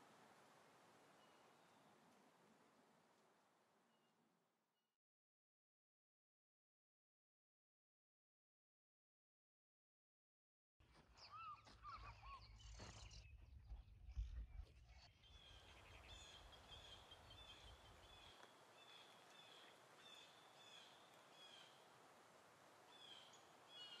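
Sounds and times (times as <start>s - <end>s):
birds calling: 15.2s - 24.0s.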